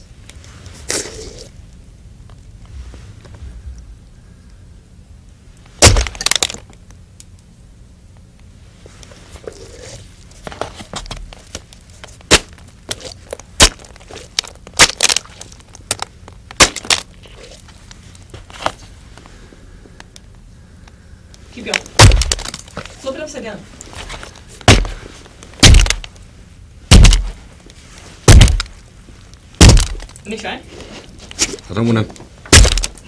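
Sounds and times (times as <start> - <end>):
fruit cracking and squishing: 0.7 - 2.5, 5.6 - 7.4, 9.0 - 19.0, 20.0 - 23.1, 23.8 - 26.3, 26.9 - 30.3, 31.1 - 33.0
hammer smashing melon: 5.8 - 6.6, 12.3 - 13.9, 16.6 - 17.0, 22.0 - 22.6, 24.6 - 25.0, 25.6 - 26.0, 26.9 - 27.4, 28.3 - 28.8, 29.6 - 30.1, 32.5 - 33.0.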